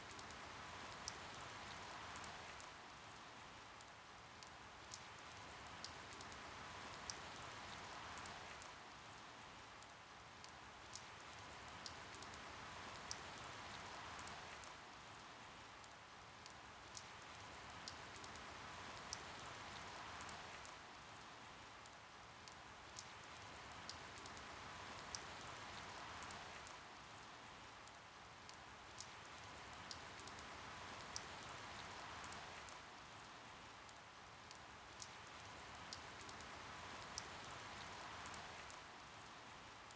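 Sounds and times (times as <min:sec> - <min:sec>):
faint steady rain: 0:00.0 - 0:39.9
sharp water drips: 0:09.8 - 0:39.9.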